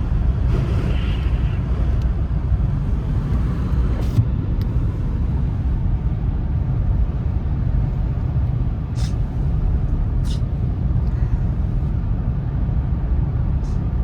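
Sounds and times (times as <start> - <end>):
car driving low rumble: 0.0 - 14.0
road and wind noise: 0.0 - 14.0
short hissing sounds: 8.9 - 9.6, 10.2 - 10.6.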